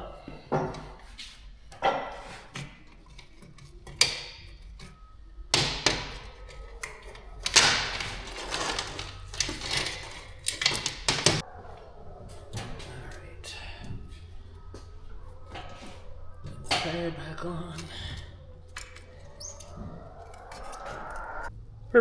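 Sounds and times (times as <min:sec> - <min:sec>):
metal scraping: 0:00.0 - 0:21.5.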